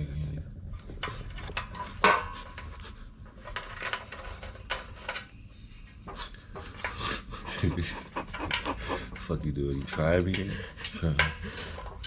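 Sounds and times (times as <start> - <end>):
hand tools clicking on metal: 6.1 - 12.0.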